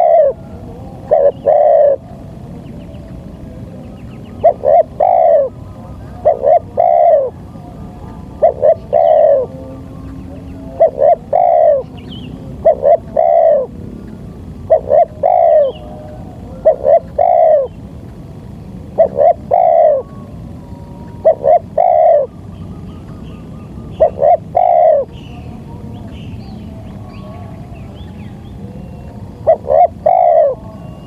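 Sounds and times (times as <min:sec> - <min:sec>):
dove cooing: 0:00.0 - 0:31.0.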